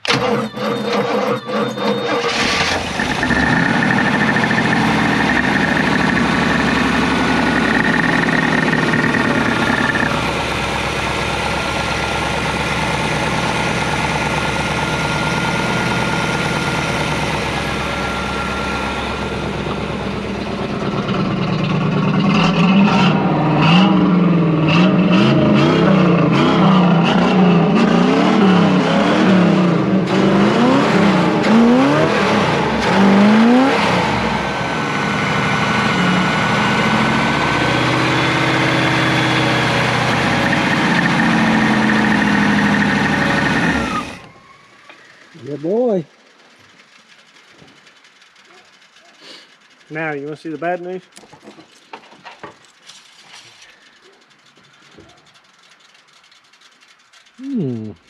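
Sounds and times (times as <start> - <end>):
car engine revving: 0.0 - 44.3, 57.4 - 58.0.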